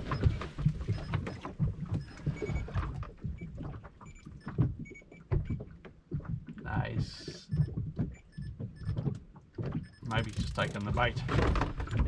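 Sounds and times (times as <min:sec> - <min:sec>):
water rumbling against hull: 0:00.0 - 0:12.0
rod and reel clicks and knocks: 0:07.6 - 0:12.0.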